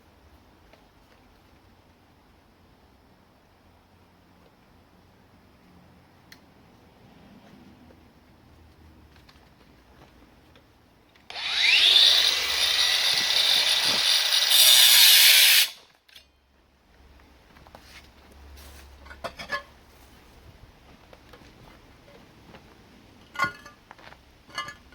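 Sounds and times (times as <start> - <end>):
angle grinder cutting concrete: 11.3 - 15.8.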